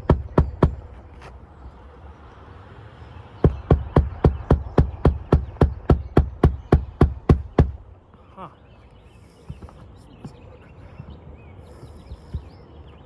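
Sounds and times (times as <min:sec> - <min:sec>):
hammer driving nail into shingle: 0:00.0 - 0:00.9, 0:03.4 - 0:07.8.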